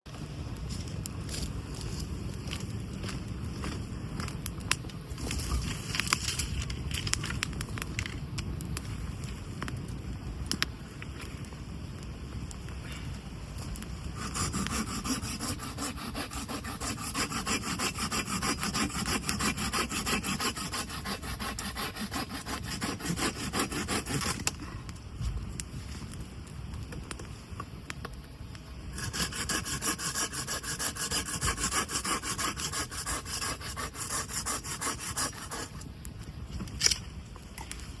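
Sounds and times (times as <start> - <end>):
hand saw cutting wood: 14.2 - 24.4, 29.0 - 35.7.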